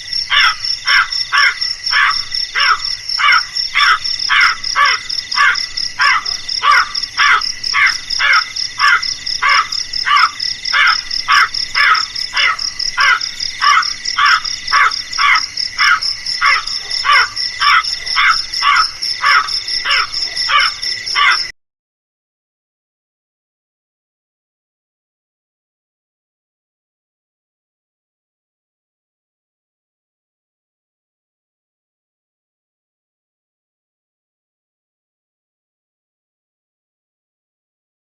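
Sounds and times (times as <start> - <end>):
crow cawing: 0.3 - 21.5.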